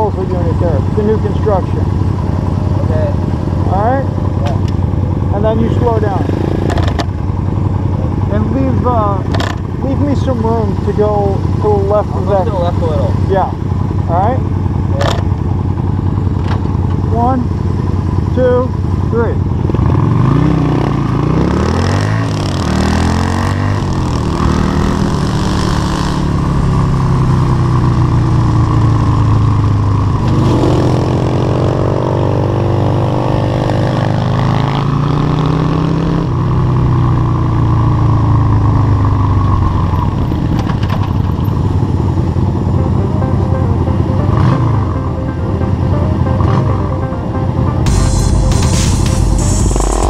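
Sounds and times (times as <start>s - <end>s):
motorcycle engines accelerating: 0.0s - 50.0s.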